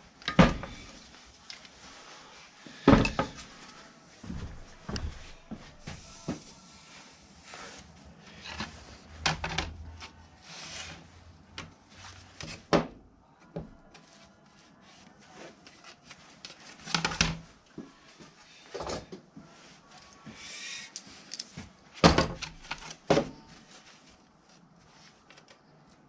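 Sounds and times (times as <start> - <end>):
objects knocking and clattering: 2.9 - 3.4.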